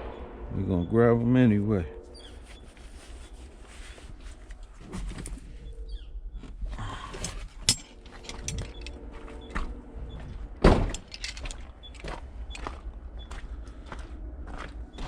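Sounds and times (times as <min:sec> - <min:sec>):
low steady rumble: 0:00.0 - 0:15.0
scrap metal clanking: 0:07.2 - 0:09.0.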